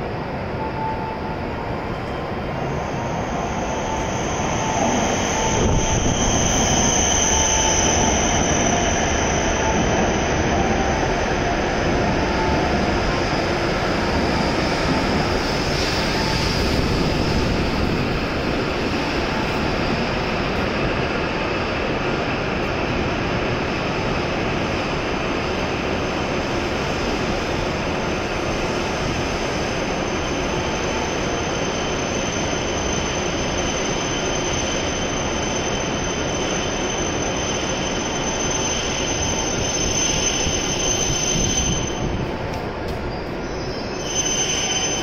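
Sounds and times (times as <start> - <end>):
train steady rushing noise: 0.0 - 45.0
faint high whine: 0.2 - 20.5.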